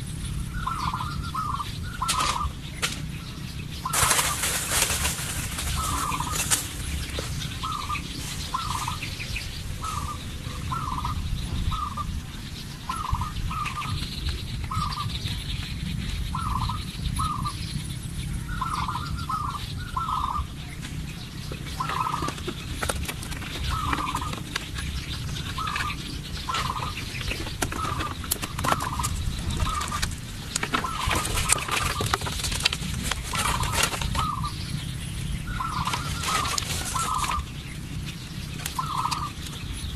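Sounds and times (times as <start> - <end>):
fowl-like birds calling: 0.5 - 2.8, 3.8 - 12.2, 18.4 - 20.8, 21.7 - 22.8, 23.4 - 32.2, 33.2 - 34.8, 35.4 - 37.6, 38.7 - 39.9.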